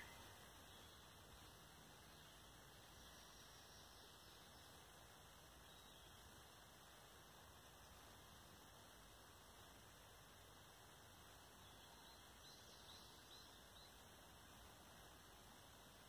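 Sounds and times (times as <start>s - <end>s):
faint high bird chirps: 0.0s - 4.8s, 5.6s - 6.3s, 11.5s - 14.0s
faint steady hiss: 0.0s - 16.0s.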